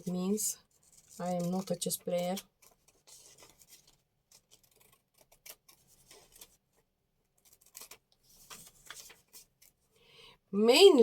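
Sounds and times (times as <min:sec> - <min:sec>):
paper rustling: 0:00.7 - 0:09.8
scissors snipping paper: 0:00.8 - 0:06.6, 0:07.4 - 0:08.1.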